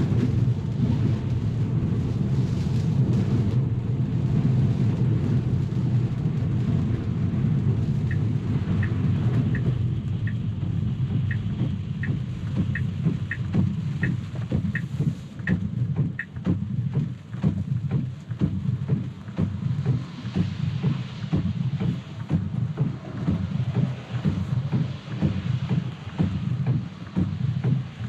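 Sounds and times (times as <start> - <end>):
tyre and road rumble: 0.0 - 28.0
turn signal ticking: 4.2 - 28.0.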